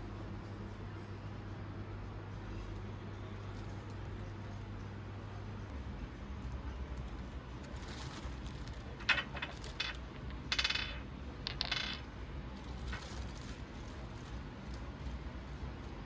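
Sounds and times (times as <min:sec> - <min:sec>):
low steady hum: 0:00.0 - 0:16.0
small metal objects clinking: 0:07.8 - 0:14.0.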